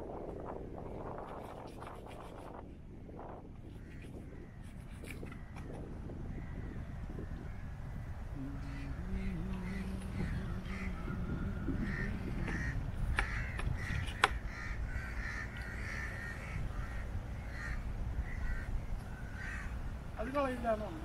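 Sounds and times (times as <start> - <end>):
crows cawing: 6.3 - 19.9.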